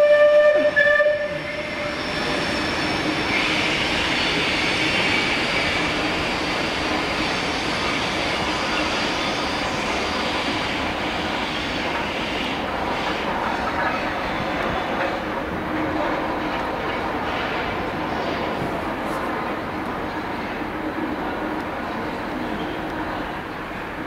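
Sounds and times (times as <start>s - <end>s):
train warning horn: 0.0s - 1.7s
train wheels rumbling on rail: 0.0s - 24.0s.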